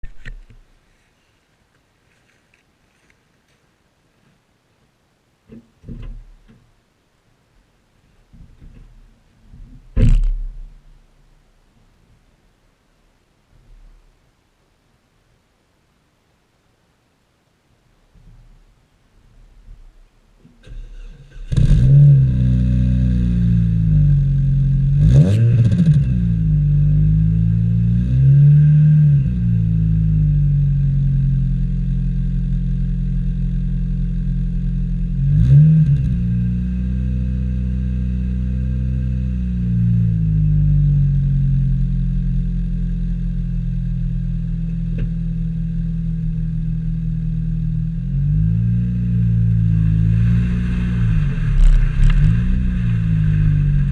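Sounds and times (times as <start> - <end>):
car engine starting and revving: 20.6 - 53.9
car engine idling: 49.1 - 53.9.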